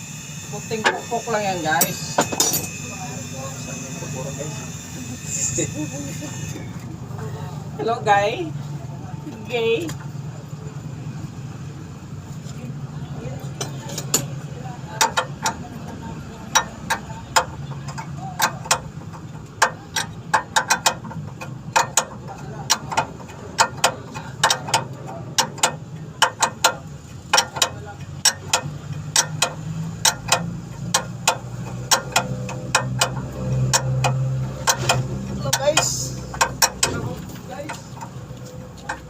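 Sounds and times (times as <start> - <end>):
ratchet wrench clicking: 13.6 - 39.0.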